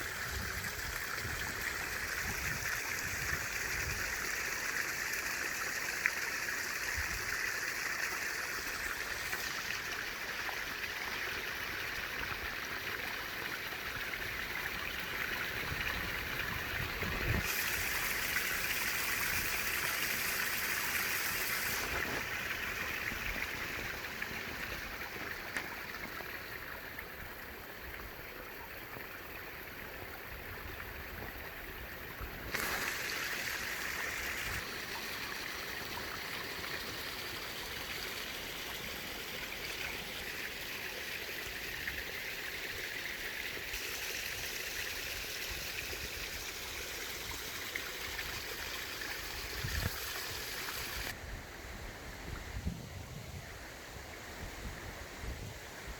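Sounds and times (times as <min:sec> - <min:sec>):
water flowing: 0:00.0 - 0:51.2.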